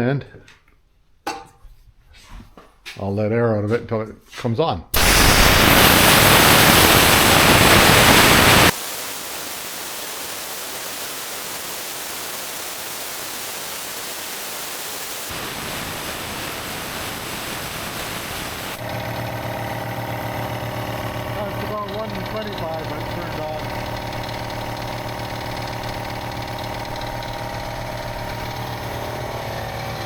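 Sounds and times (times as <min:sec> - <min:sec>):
compressed air hissing: 0:05.0 - 0:19.0, 0:20.7 - 0:29.0
compressor motor humming: 0:18.7 - 0:30.0.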